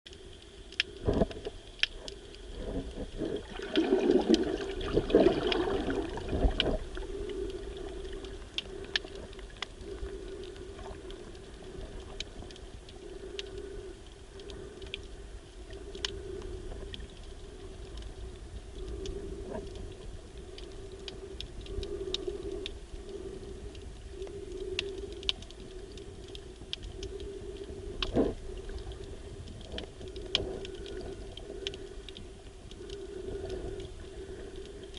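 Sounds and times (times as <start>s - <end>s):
sharp underwater clicks and crackles: 0.1s - 34.9s
swishing churning water: 0.4s - 18.2s.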